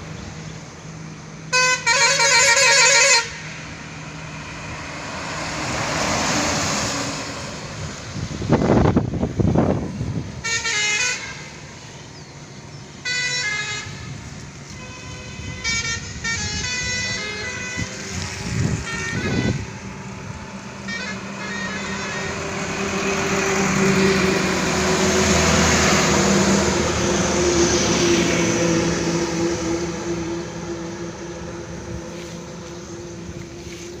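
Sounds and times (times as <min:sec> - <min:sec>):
heavy truck engine hum: 0:00.0 - 0:34.0
trucks passing by: 0:00.0 - 0:34.0
truck horn blasts: 0:01.5 - 0:03.6, 0:10.4 - 0:11.7, 0:13.0 - 0:26.6.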